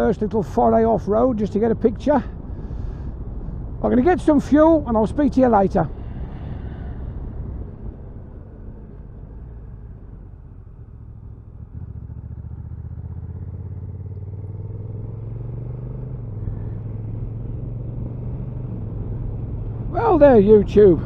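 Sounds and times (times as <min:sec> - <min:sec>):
motorcycle engine accelerating: 0:05.9 - 0:21.0.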